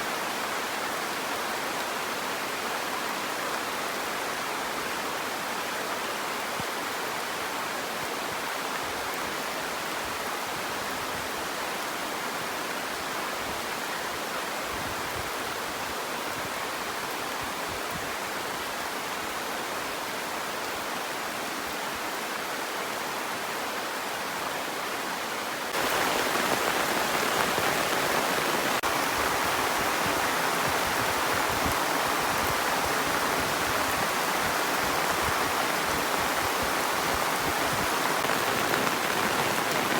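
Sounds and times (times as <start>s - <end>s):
heavy rain falling: 25.5s - 39.9s.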